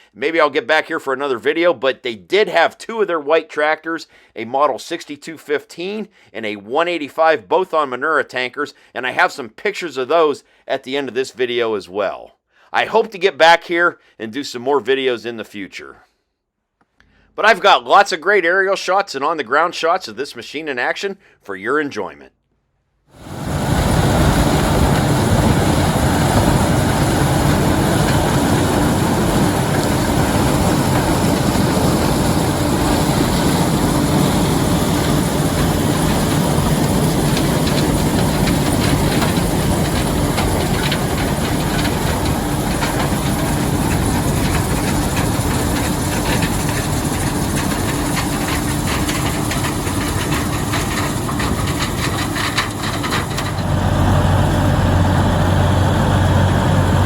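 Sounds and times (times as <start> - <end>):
combine engine drone: 23.2 - 57.0
threshing machinery rattle: 23.2 - 57.0.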